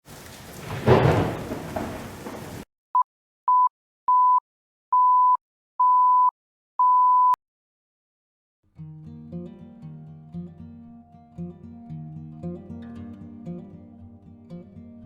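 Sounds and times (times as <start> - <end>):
rumbling rain-like noise: 0.0 - 2.6.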